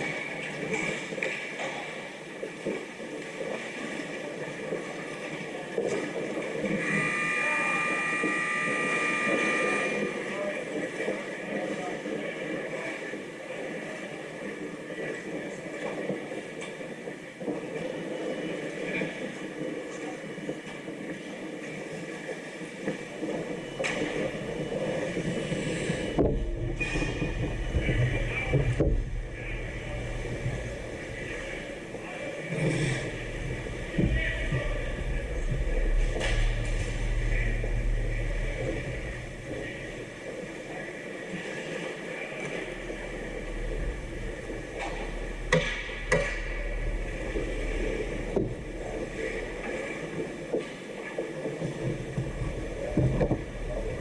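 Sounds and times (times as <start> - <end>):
low rink hum: 0.0 - 54.0
players' voices: 23.6 - 50.3.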